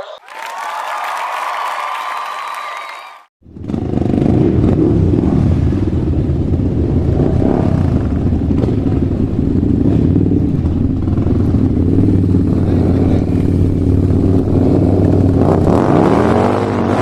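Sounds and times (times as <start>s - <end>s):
vehicle engine rumbling: 3.4s - 17.0s.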